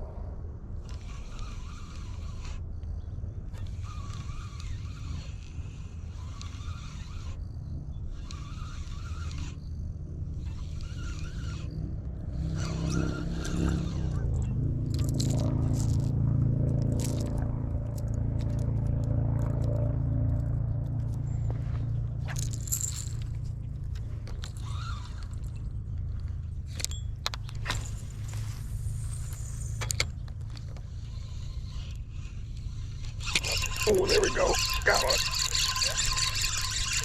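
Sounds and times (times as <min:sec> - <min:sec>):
spinning reel cranking: 0:00.9 - 0:02.6, 0:03.6 - 0:14.3, 0:24.3 - 0:25.6, 0:27.7 - 0:37.0
vehicle engine running: 0:13.2 - 0:37.0.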